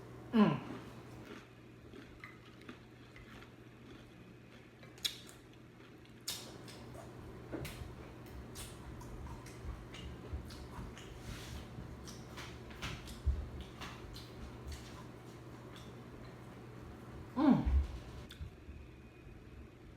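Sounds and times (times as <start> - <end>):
person chewing tortilla chips: 0.7 - 16.4.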